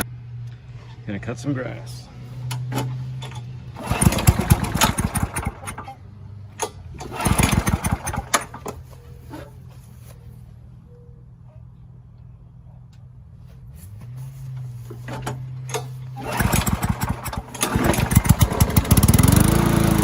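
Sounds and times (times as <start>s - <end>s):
lawn mower engine running: 2.1s - 10.1s, 13.7s - 20.0s.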